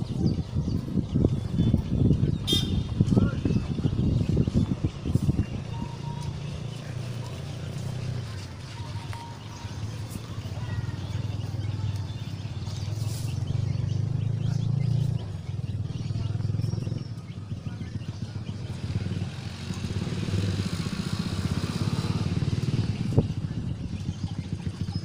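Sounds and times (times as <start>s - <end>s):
small engine running: 6.2s - 25.0s.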